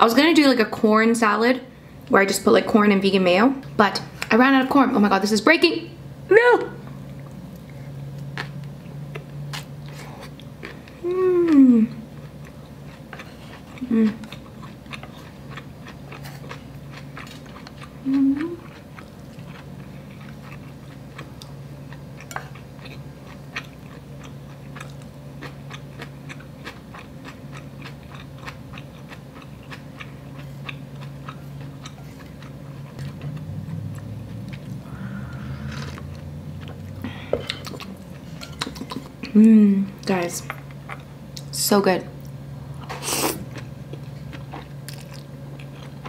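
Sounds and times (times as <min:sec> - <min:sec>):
steady low hum: 0:00.0 - 0:46.0
person humming: 0:11.0 - 0:12.0, 0:13.8 - 0:14.3, 0:18.0 - 0:18.6, 0:39.4 - 0:39.9
mouth chewing with wet clicks: 0:12.2 - 0:34.8.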